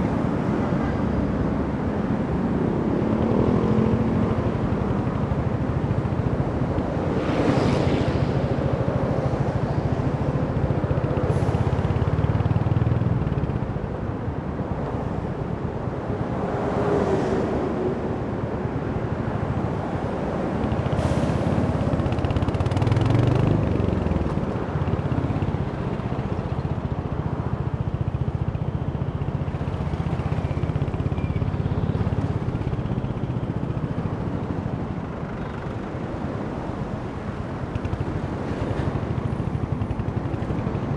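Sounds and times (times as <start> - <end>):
road and wind noise: 0.0 - 40.9.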